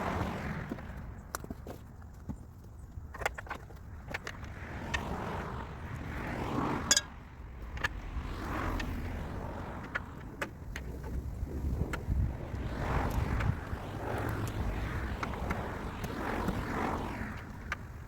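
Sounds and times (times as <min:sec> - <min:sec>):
metallic tool clicks and clinks: 0:06.9 - 0:07.1.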